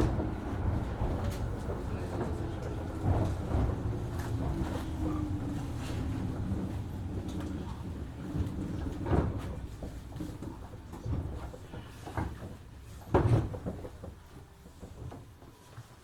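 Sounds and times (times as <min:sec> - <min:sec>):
electric train running hum: 0:00.0 - 0:12.5.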